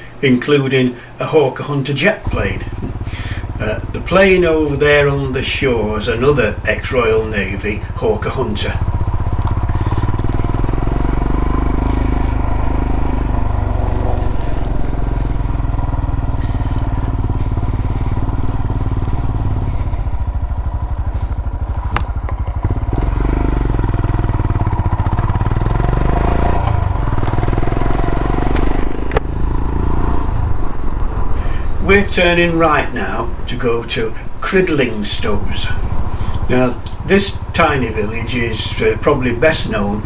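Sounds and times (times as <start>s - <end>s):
motorcycle engine running: 0.0s - 0.2s, 2.2s - 40.0s.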